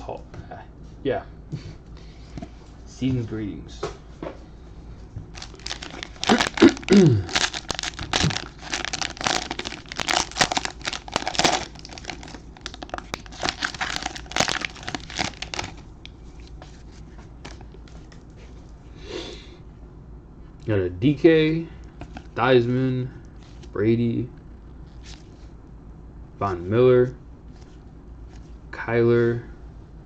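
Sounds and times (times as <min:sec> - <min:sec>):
plastic wrapper tearing and crinkling: 0:05.3 - 0:15.9.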